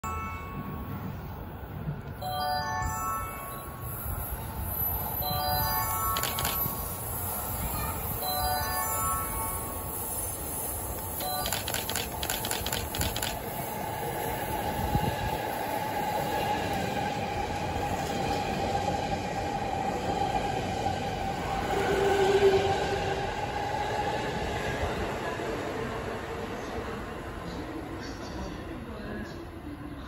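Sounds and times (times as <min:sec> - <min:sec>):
train rumble with ringing tone: 0:00.0 - 0:30.0
train wheels clicking: 0:06.2 - 0:06.7, 0:10.8 - 0:13.7.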